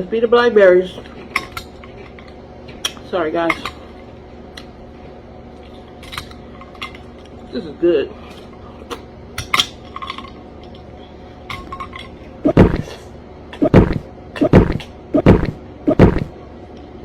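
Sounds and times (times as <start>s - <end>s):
loud knocks: 12.5s - 12.9s, 13.6s - 16.3s.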